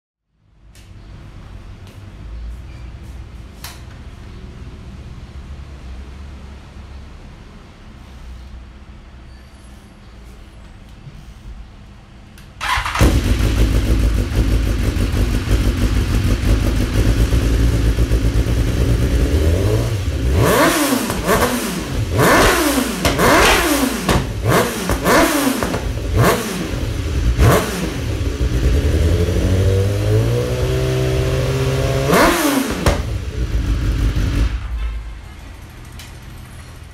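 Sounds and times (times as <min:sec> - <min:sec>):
motorcycle engine revving: 0:12.6 - 0:34.8.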